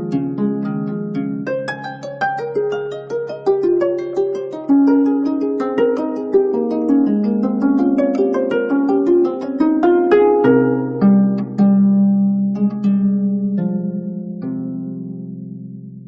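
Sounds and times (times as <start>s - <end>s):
zither plucked notes: 0.0s - 16.0s.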